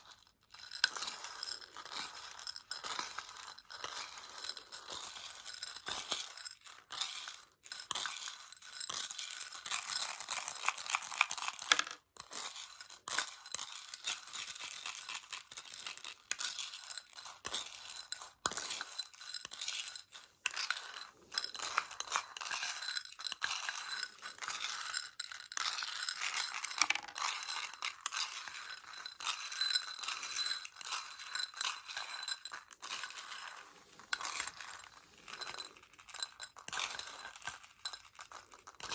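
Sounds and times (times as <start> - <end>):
chocolate pellets rattling: 10.7 - 12.0, 20.6 - 36.2
tapping on plastic case: 26.8 - 27.2.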